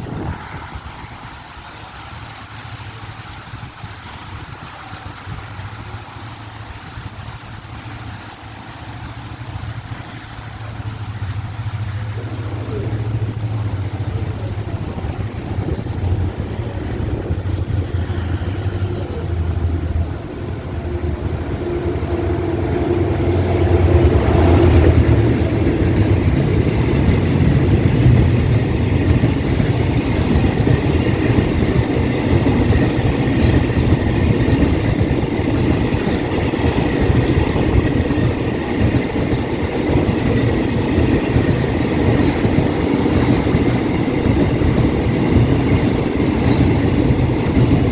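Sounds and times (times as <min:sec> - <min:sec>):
heavy rain: 0:00.0 - 0:47.9
locomotive engine drone: 0:00.0 - 0:47.9
freight wagons rattling: 0:24.0 - 0:47.9.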